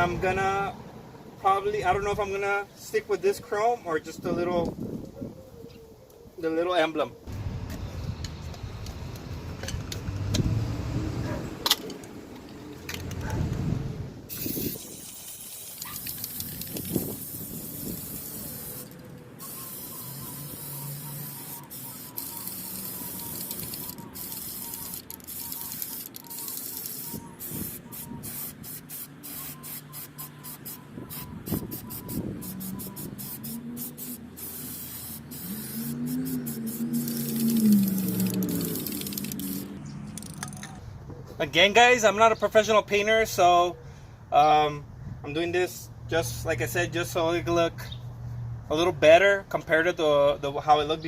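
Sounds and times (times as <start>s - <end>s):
aerosol can spraying hiss: 14.3s - 39.8s.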